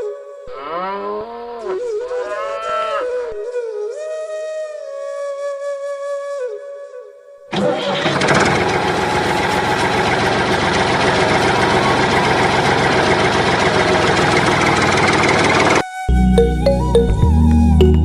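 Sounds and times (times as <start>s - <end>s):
small engine running: 7.5s - 15.8s.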